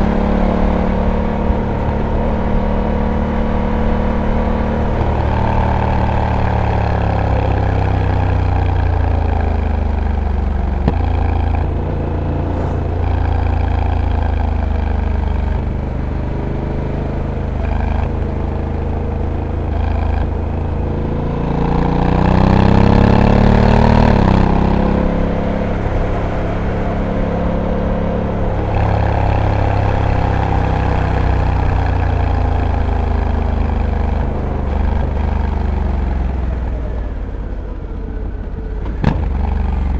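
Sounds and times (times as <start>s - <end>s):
motorcycle engine revving: 0.0s - 37.8s.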